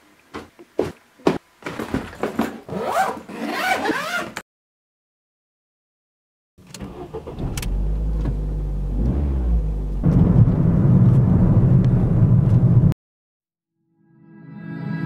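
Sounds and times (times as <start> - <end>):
car engine starting and running: 6.6 - 13.0.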